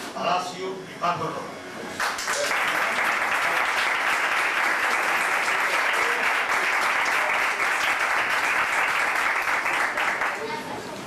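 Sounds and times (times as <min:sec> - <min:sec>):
audience applauding: 0:02.0 - 0:10.8.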